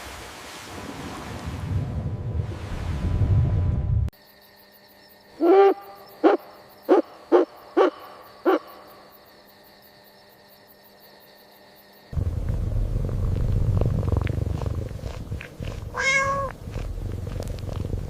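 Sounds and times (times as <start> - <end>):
owl hooting: 5.4 - 8.8, 15.9 - 16.6.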